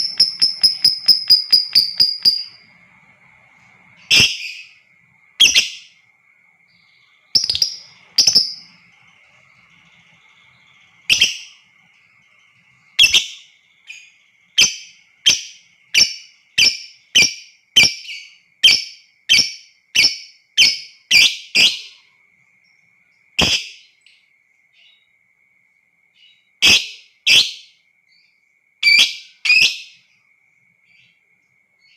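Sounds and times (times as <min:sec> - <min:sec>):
lovebird shrill calls: 0:00.0 - 0:02.8, 0:04.0 - 0:04.8, 0:05.4 - 0:06.0, 0:07.0 - 0:12.4, 0:13.0 - 0:22.0, 0:23.4 - 0:23.8
faint steady high tone: 0:00.0 - 0:31.9.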